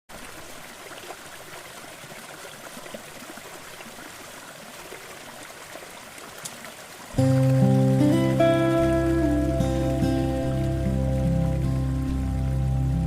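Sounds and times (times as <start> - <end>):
waterfall rushing: 7.1 - 13.0.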